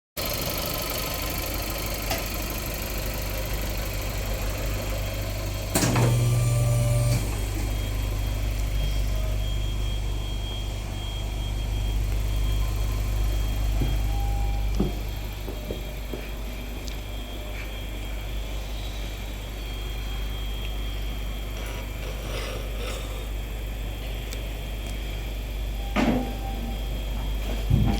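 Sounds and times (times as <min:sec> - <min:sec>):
car engine idling and revving: 0:00.2 - 0:17.3.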